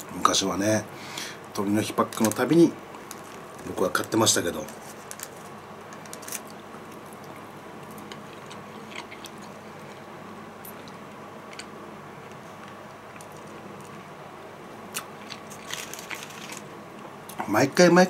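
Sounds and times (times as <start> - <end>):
faint room hum: 0.0 - 18.0
paper wrapper clicks: 2.1 - 6.6
faint chewing: 4.6 - 14.0.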